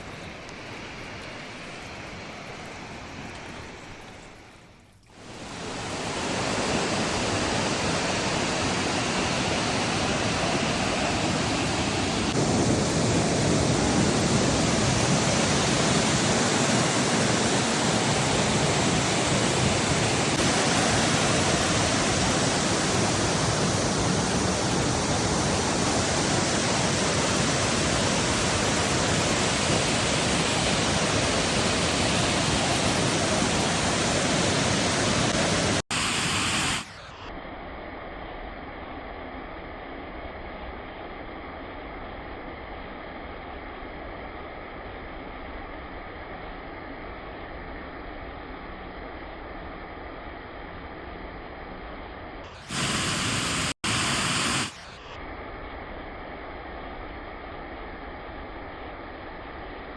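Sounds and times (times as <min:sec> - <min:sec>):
waterfall rushing: 0:05.3 - 0:37.0, 0:52.6 - 0:55.0.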